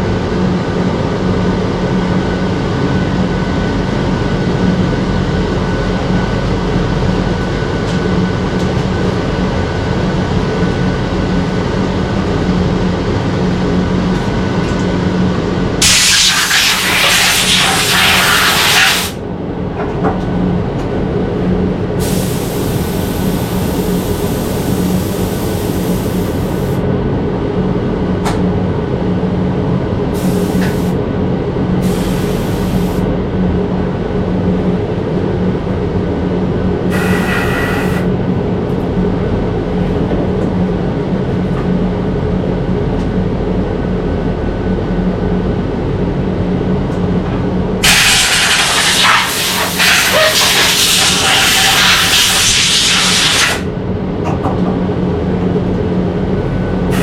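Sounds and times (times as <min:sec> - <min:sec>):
hissing air bursts: 0:15.8 - 0:19.2, 0:22.0 - 0:26.8, 0:30.2 - 0:30.9, 0:31.8 - 0:33.0, 0:36.9 - 0:38.1, 0:47.8 - 0:53.6.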